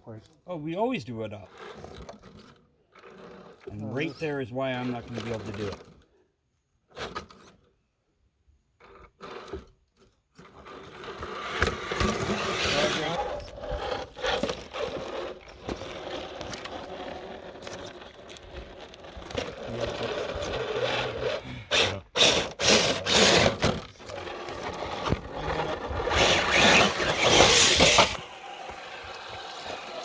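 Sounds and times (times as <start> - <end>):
tyres scraping over rock: 10.5 - 30.0
electric motor whirring: 11.0 - 30.0.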